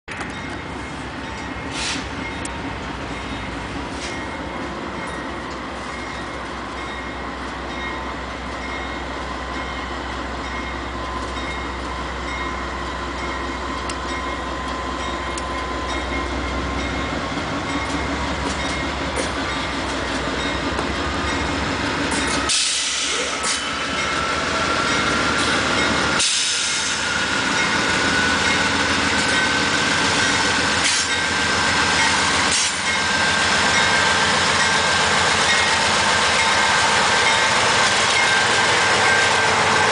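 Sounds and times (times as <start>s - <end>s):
diesel locomotive rumble: 0.1s - 39.9s.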